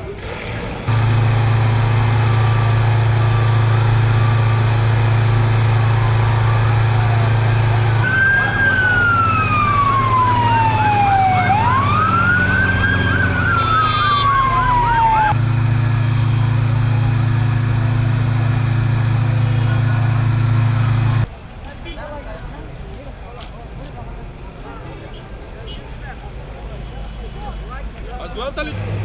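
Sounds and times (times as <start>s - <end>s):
siren wailing: 0.9s - 16.5s
warbling siren: 0.9s - 17.0s.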